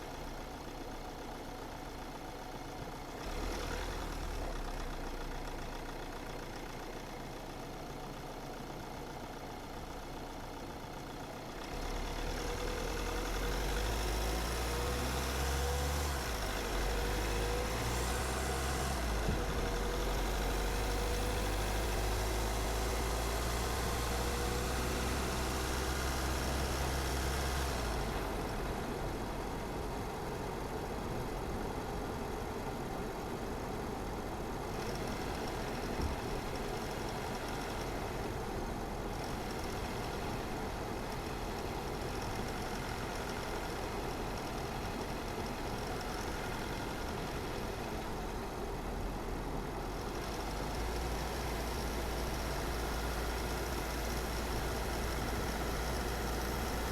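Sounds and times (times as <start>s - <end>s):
car engine and tyre noise: 0.0s - 56.9s.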